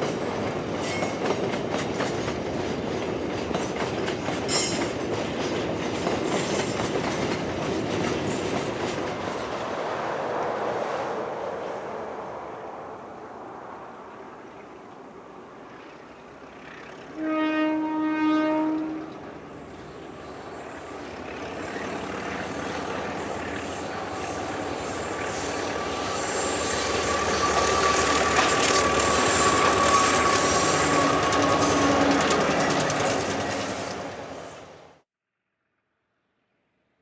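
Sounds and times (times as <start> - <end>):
diesel train passing: 0.0 - 35.0
locomotive horn blast: 17.1 - 19.3.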